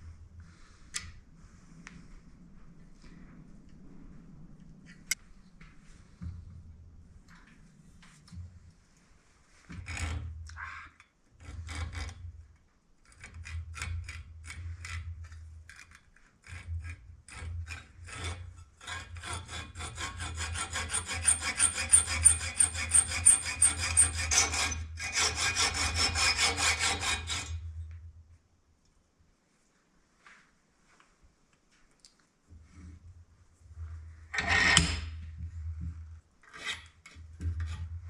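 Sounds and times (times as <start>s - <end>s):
hacksaw cutting metal: 18.0s - 27.6s.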